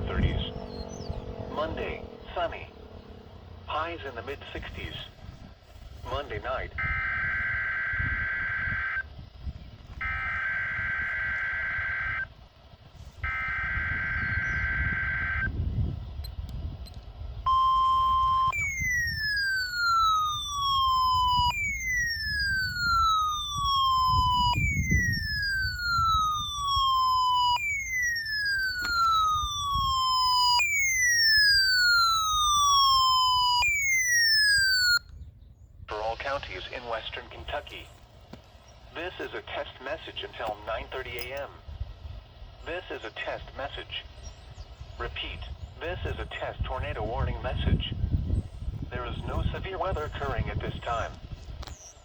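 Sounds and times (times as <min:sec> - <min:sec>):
data header tones: 0:00.0 - 0:03.1, 0:13.2 - 0:15.5, 0:17.5 - 0:35.0
steady alert tone: 0:00.0 - 0:03.6, 0:17.5 - 0:35.0
electronic siren alarm sweeping down: 0:00.0 - 0:03.7, 0:06.4 - 0:09.2, 0:10.0 - 0:12.4, 0:13.2 - 0:15.8, 0:17.5 - 0:35.1.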